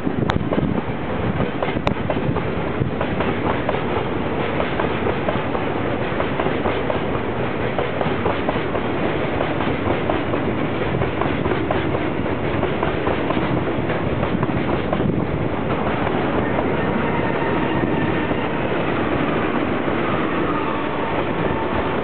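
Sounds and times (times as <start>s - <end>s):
freight train wheels clattering: 0.3s - 22.0s.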